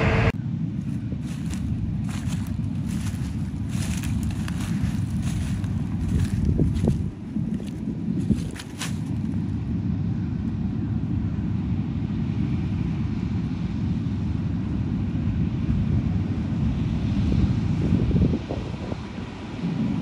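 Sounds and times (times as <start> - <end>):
harvest machinery rumbling: 0.0 - 10.0
wind noise on microphone: 0.0 - 20.0.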